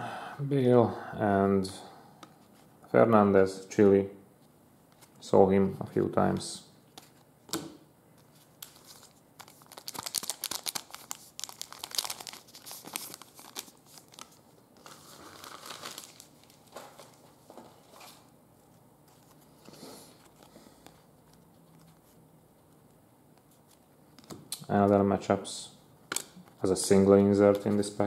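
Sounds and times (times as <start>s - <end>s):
wrapper crinkling and tearing: 8.6s - 17.2s.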